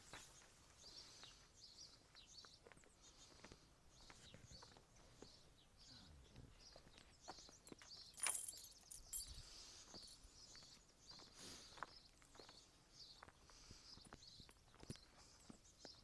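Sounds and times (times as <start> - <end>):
footsteps on a path: 0.0 - 5.6, 6.5 - 16.0.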